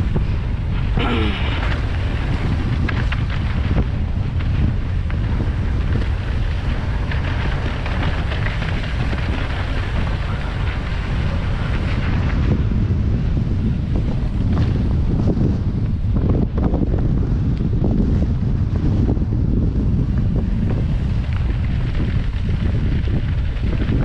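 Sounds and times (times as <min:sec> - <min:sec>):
wind buffeting microphone: 0:00.0 - 0:24.0
bike clicks and rattles: 0:01.6 - 0:13.1.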